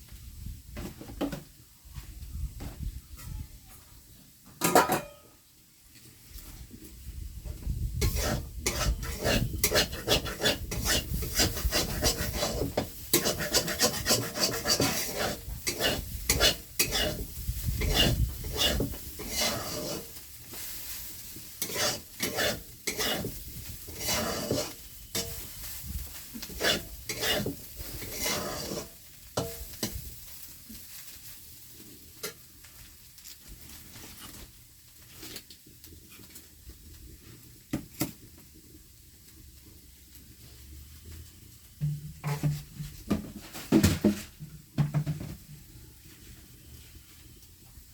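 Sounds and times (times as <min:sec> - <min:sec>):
utensil scraping a pan: 0:08.0 - 0:30.1, 0:41.8 - 0:45.4
food sizzling in a pan: 0:08.0 - 0:33.2.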